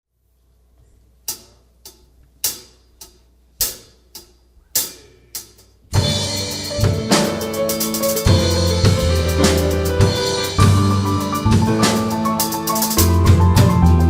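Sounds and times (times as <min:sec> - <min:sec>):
band playing: 0:05.9 - 0:14.0.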